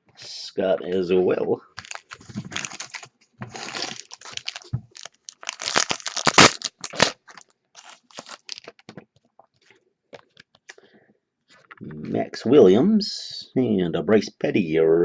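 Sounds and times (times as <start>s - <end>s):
packaging crinkling and tearing: 1.8s - 9.0s.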